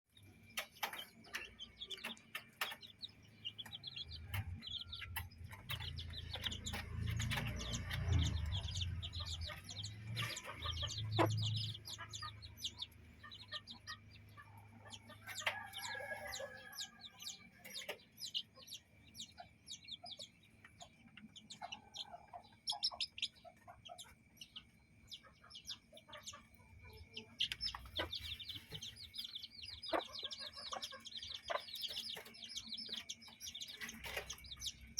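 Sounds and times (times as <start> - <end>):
chicks peeping: 0.1 - 34.9
chickens clucking: 0.2 - 34.9
low rumble: 5.8 - 12.7.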